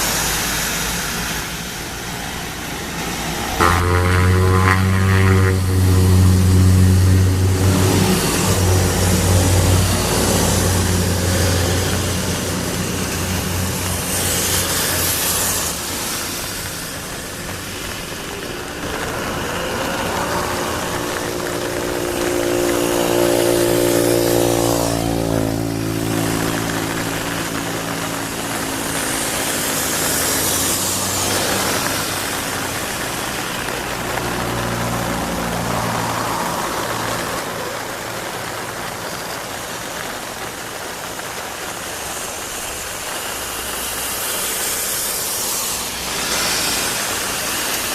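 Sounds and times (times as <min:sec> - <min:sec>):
turboprop engine drone: 0:00.0 - 0:34.3.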